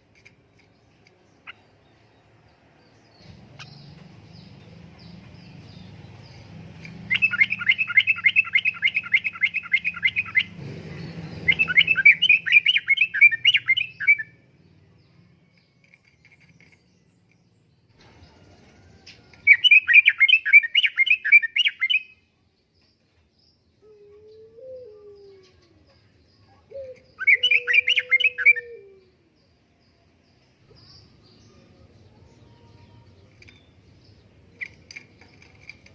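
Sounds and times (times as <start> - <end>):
bulbul singing chattering phrases: 3.2 - 14.5, 23.9 - 29.6.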